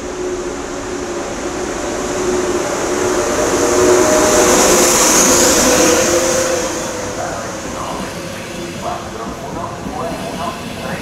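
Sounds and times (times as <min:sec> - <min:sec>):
train wheels rushing on rail: 0:00.0 - 0:11.0.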